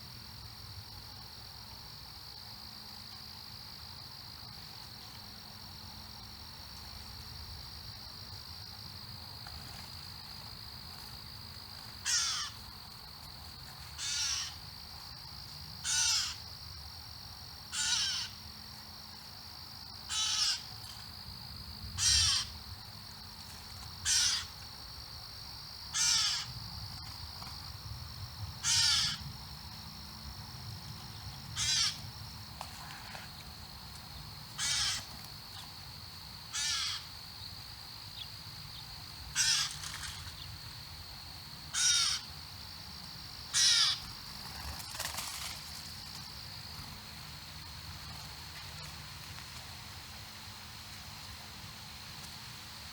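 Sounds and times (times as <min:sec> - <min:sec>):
high insect drone: 0:00.0 - 0:52.9
bird harsh caw-like call: 0:12.0 - 0:12.6, 0:14.0 - 0:14.6, 0:15.8 - 0:16.4, 0:17.7 - 0:18.4, 0:20.1 - 0:20.7, 0:22.0 - 0:22.5, 0:24.0 - 0:24.5, 0:26.0 - 0:26.5, 0:28.6 - 0:29.2, 0:31.6 - 0:32.0, 0:34.6 - 0:35.1, 0:36.5 - 0:37.1, 0:39.4 - 0:40.2, 0:41.7 - 0:42.3, 0:43.5 - 0:44.0.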